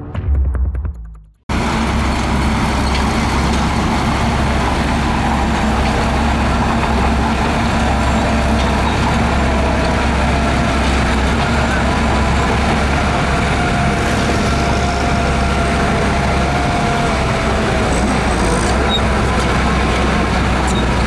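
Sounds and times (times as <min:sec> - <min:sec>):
intro music: 0:00.0 - 0:01.4
diesel engine running steadily: 0:01.5 - 0:21.0.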